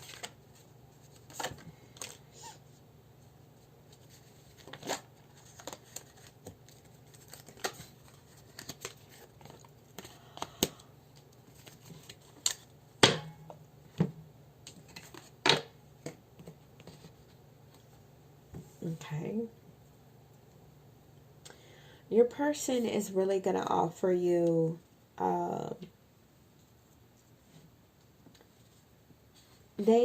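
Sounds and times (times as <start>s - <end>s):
cards rustling and clicking: 0.0s - 2.3s, 3.9s - 12.7s, 14.6s - 17.1s.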